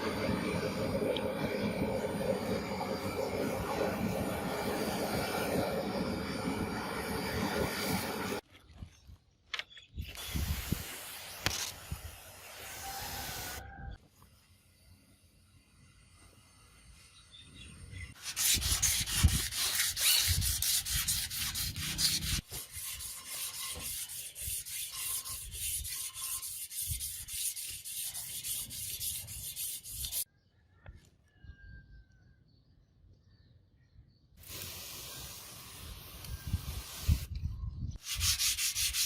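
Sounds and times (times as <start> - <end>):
rasping sanding strokes: 18.2 - 30.3, 38.0 - 39.0
steady rubbing noise: 18.3 - 30.2, 38.0 - 39.0.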